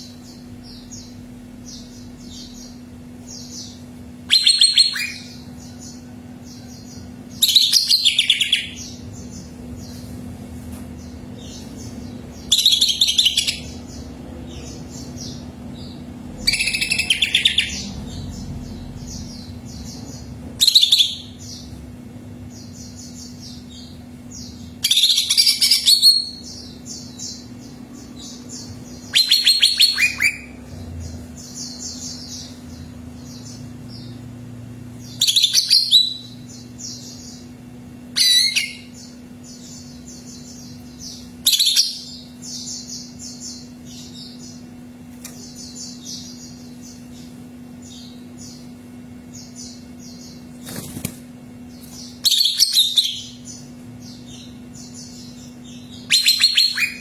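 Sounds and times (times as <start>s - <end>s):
faint bird chirping: 0.0s - 57.0s
steady low hum: 0.0s - 57.0s
bird singing rapid high notes: 0.7s - 5.6s, 11.4s - 21.7s, 22.6s - 34.2s, 35.1s - 44.6s, 52.0s - 57.0s.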